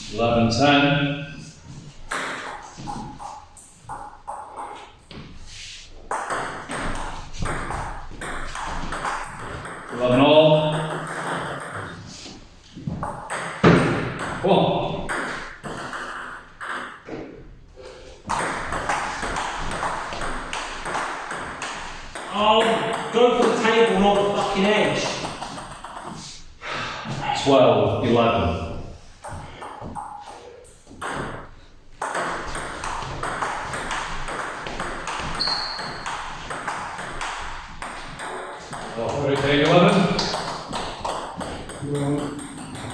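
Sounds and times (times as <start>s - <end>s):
brief high squeak: 35.4s - 36.0s.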